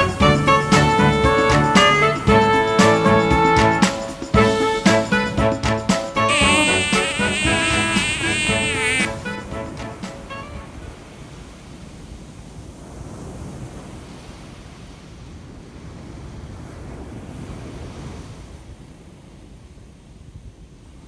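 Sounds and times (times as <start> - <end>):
surf washing onto a beach: 7.8 - 20.0.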